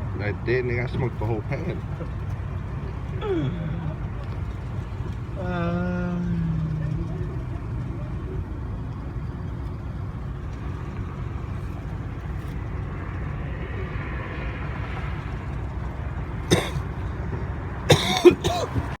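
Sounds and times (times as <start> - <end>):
truck rumbling on road: 0.0 - 19.0
person coughing: 16.5 - 16.8, 17.9 - 18.8
throat clearing: 16.5 - 16.8, 17.9 - 18.9.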